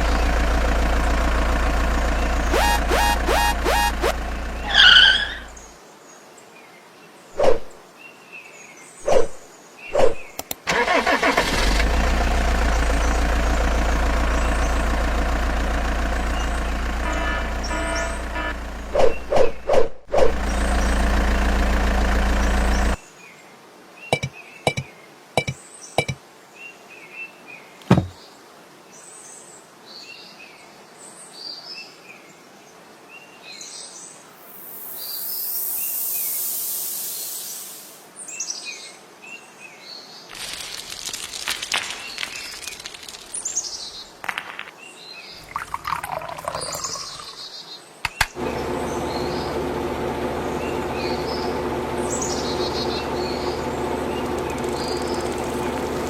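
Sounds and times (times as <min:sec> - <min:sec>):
low engine-like drone: 0:00.0 - 0:05.7, 0:11.9 - 0:23.0, 0:48.4 - 0:56.0
birds chirping: 0:00.0 - 0:05.8, 0:12.3 - 0:23.0, 0:24.1 - 0:26.2, 0:40.3 - 0:56.0
sharp clicks: 0:10.4 - 0:10.7, 0:48.0 - 0:48.4
hiss: 0:34.4 - 0:38.1.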